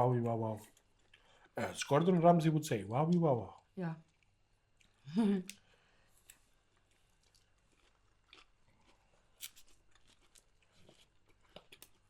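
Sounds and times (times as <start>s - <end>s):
person chewing crispy food: 6.2s - 12.0s.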